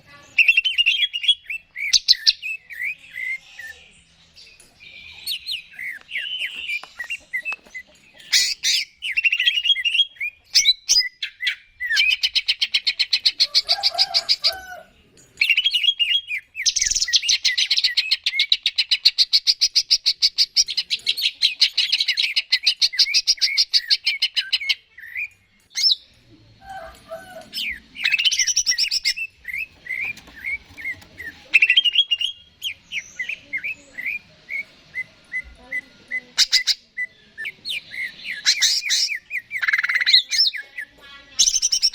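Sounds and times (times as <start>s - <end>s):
rapid rattling bird trills: 5.6s - 14.5s, 27.5s - 34.3s.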